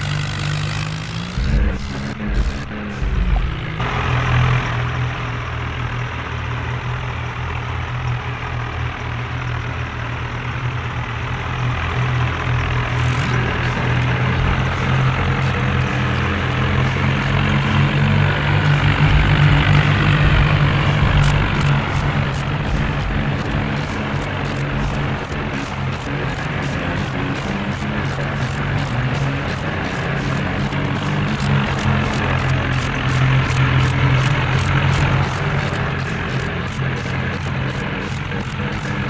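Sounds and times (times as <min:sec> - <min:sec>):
tractor diesel engine running: 0:00.0 - 0:04.4, 0:12.3 - 0:39.0.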